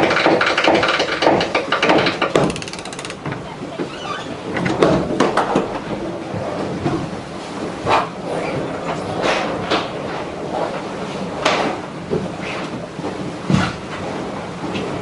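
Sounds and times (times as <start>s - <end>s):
scattered knocks and clatter: 0.0s - 3.5s
deck winch ratcheting clicks: 1.5s - 3.4s.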